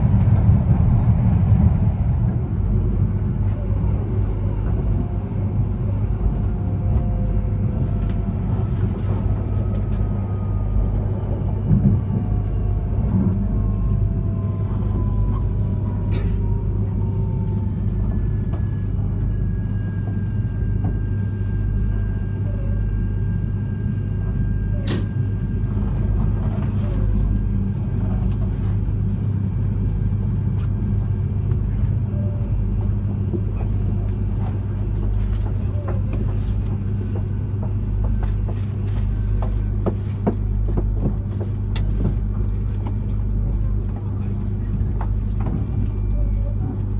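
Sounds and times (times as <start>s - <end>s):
train rumbling on rails: 0.0s - 46.9s.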